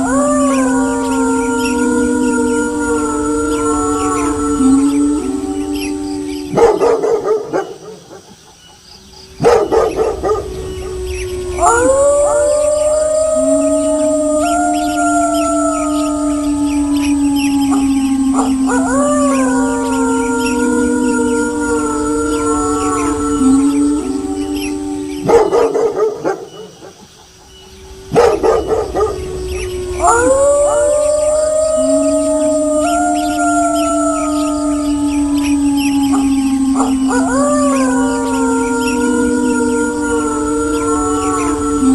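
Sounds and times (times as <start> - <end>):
wolves howling: 0.0 - 41.9
dog barking: 6.6 - 8.4, 9.4 - 10.5, 25.3 - 27.0, 28.1 - 29.1.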